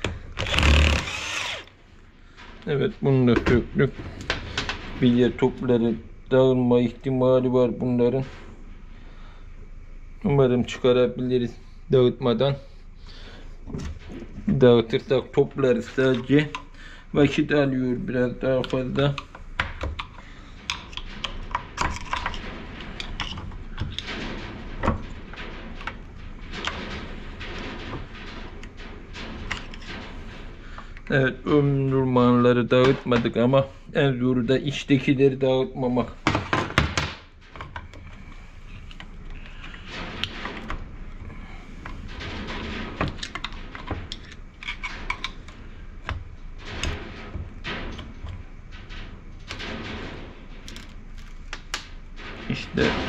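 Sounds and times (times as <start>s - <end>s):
metal clicks and knocks: 18.6s - 31.2s, 36.2s - 53.0s.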